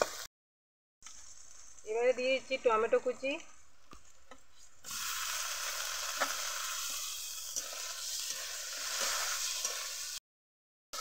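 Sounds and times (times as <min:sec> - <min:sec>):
vegetables sizzling in hot oil: 0:00.0 - 0:00.3, 0:01.0 - 0:03.2, 0:04.8 - 0:10.2.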